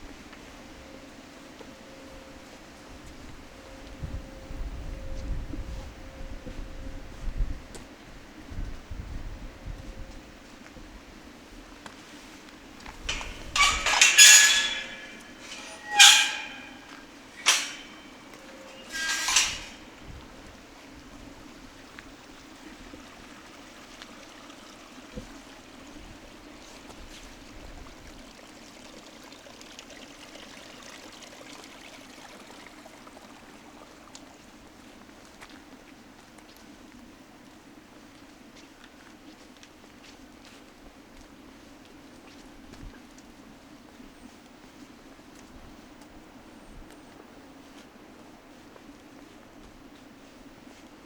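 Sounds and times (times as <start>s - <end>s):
stream water running: 10.4s - 37.0s.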